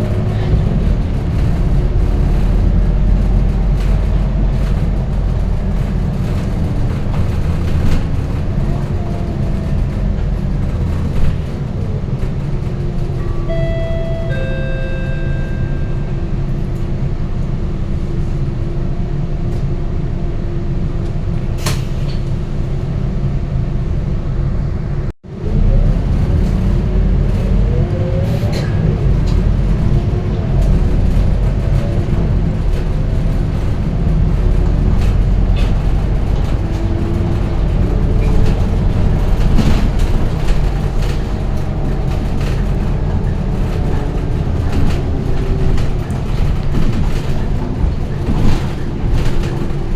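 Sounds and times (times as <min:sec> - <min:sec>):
bus engine and road noise: 0:00.0 - 0:49.9.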